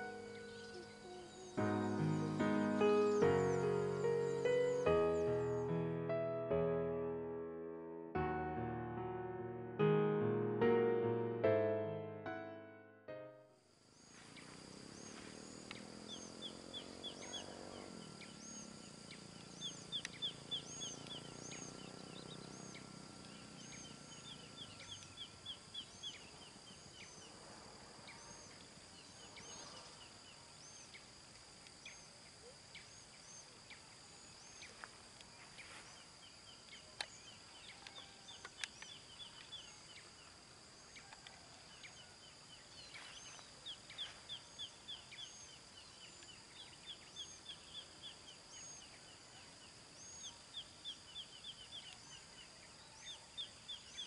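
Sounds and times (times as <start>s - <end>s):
birds chirping in trills: 0.0s - 5.8s, 14.0s - 27.4s, 35.4s - 54.0s
faint low hum: 13.9s - 54.0s.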